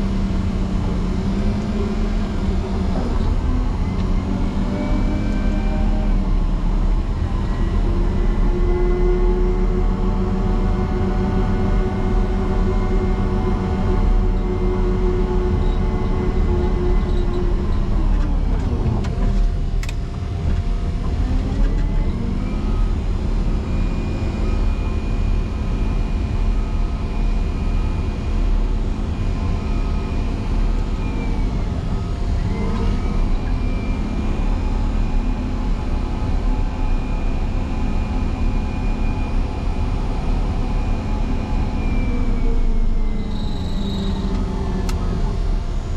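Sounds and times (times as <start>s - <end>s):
diesel engine working under load: 0.0s - 45.9s
high-pitched whine: 0.0s - 45.9s.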